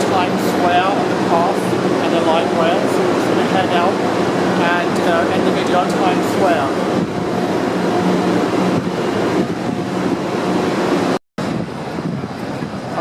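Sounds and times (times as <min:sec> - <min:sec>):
dense transit noise: 0:00.0 - 0:13.0
steady machine hum: 0:00.0 - 0:13.0.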